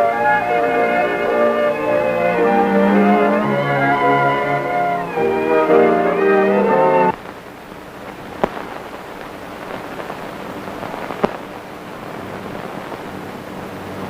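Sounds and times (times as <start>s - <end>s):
film soundtrack hiss and crackle: 0.0s - 14.0s
sharp pops: 7.1s - 13.2s.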